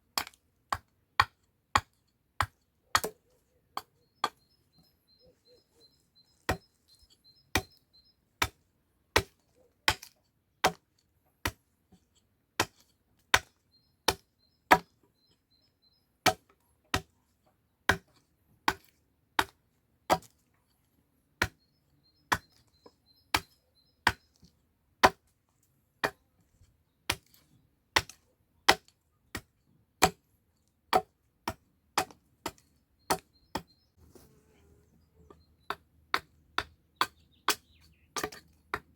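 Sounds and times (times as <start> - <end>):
axe chopping wood: 0.2 - 4.4, 7.5 - 7.8, 8.4 - 10.8, 12.6 - 13.5, 14.1 - 14.9, 16.2 - 17.1, 17.9 - 20.4, 22.3 - 22.6, 25.0 - 25.2, 26.0 - 26.2, 27.1 - 27.4, 28.0 - 30.2, 30.9 - 33.7, 35.7 - 38.9.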